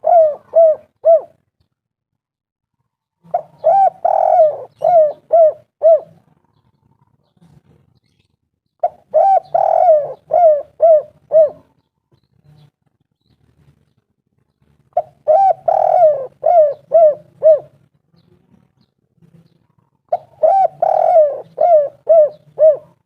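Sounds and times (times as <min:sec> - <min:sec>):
dove cooing: 0:00.0 - 0:01.4, 0:03.2 - 0:07.1, 0:08.8 - 0:11.9, 0:14.9 - 0:17.9, 0:19.7 - 0:23.0.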